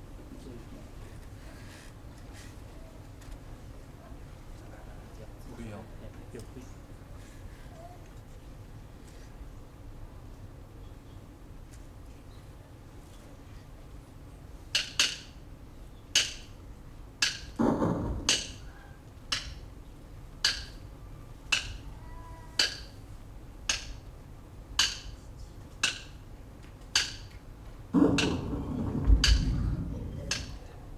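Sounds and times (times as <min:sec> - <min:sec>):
low rumble of voices: 0:00.0 - 0:14.6, 0:17.6 - 0:23.6, 0:27.6 - 0:30.9
sharp wooden knocks: 0:17.2 - 0:18.7, 0:28.0 - 0:30.9.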